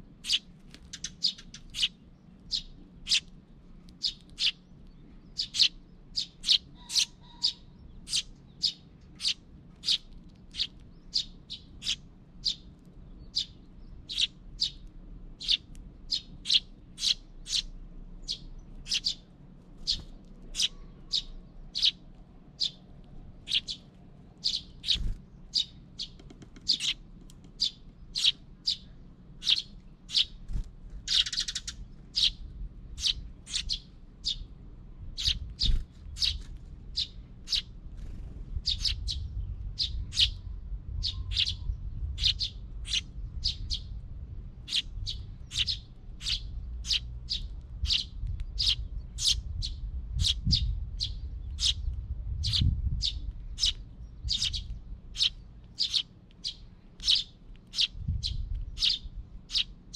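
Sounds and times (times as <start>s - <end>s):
small birds chirping: 0.0s - 59.9s
low rumble: 37.8s - 55.1s.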